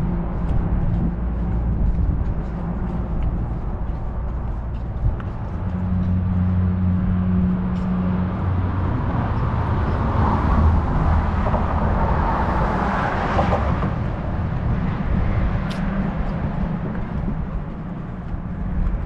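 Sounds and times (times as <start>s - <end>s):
car engine hum: 0.0s - 19.0s.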